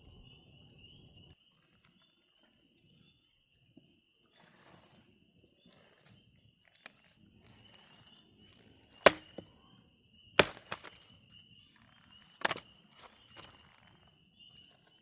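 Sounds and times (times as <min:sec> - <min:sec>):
sharp wooden strikes: 0:09.1 - 0:09.4, 0:10.4 - 0:10.9.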